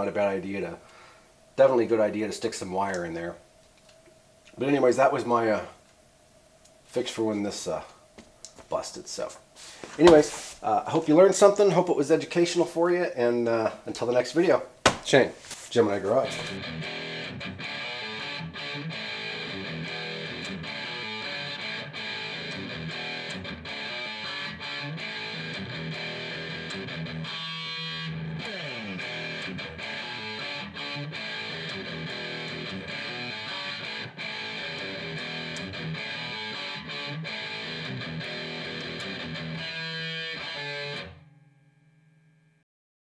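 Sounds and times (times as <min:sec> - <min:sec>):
strummed electric guitar music: 0:16.1 - 0:41.6.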